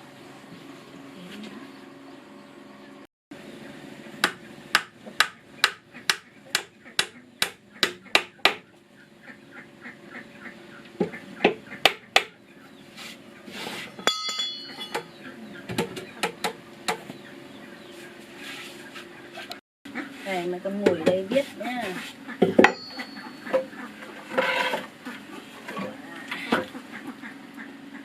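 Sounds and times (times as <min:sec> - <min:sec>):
metallic clink: 0:14.0 - 0:15.0.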